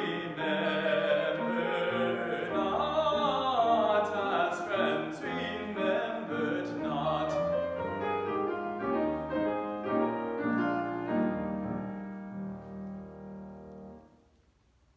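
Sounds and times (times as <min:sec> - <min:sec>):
classical singing voice: 0:00.0 - 0:11.8
piano playing: 0:00.0 - 0:14.2.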